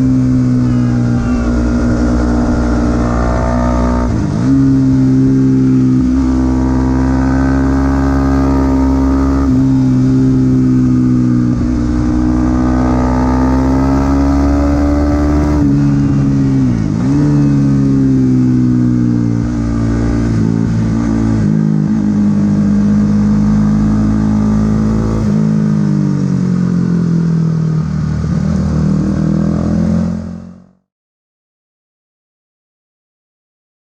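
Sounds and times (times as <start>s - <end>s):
motorcycle engine running high: 0.0s - 30.8s.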